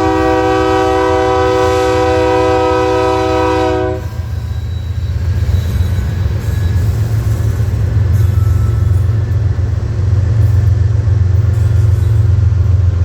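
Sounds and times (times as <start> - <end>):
locomotive air horn: 0.0 - 4.4
diesel locomotive rumble: 0.0 - 13.0.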